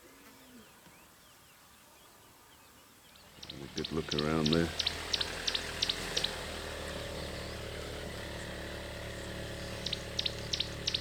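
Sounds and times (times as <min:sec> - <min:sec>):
bird chirping: 0:00.4 - 0:11.0
vehicle engine idling: 0:03.2 - 0:11.0.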